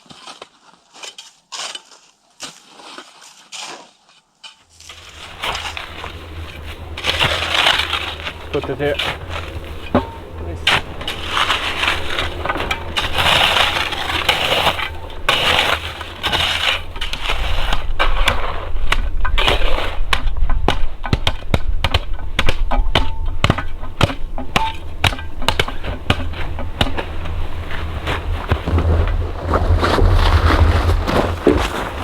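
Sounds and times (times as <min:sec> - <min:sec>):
crunching and rustling: 0:00.0 - 0:20.3, 0:23.2 - 0:32.0.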